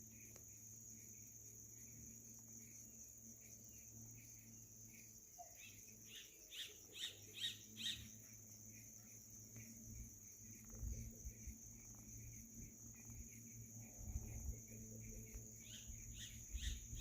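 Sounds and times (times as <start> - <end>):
bird singing: 3.4 - 17.0.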